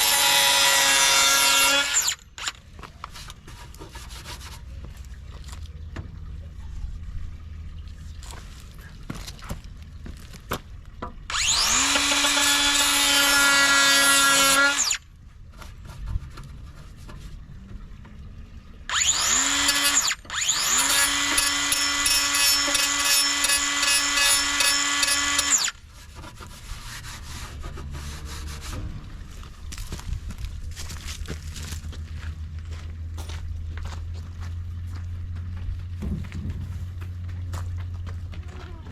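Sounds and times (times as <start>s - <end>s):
power drill running: 0.0s - 2.6s, 11.3s - 15.0s, 18.9s - 25.8s.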